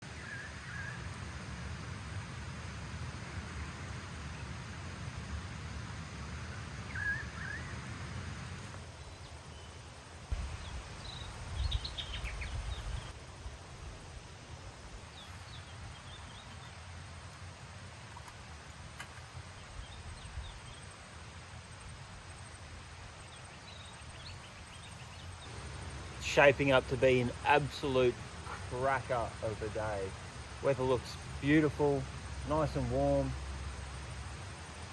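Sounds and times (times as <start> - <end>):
high bird calls: 10.4 - 13.1.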